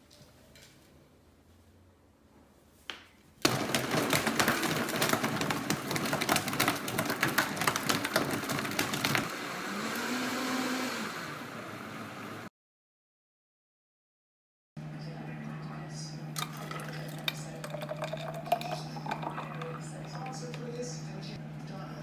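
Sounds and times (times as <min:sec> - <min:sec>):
household appliance motor rattling: 0:03.4 - 0:09.3, 0:16.4 - 0:20.8.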